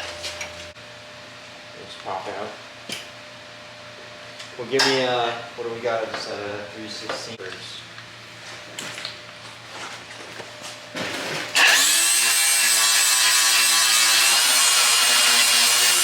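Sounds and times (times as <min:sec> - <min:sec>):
power tool whining on sheet metal: 0:11.5 - 0:16.0.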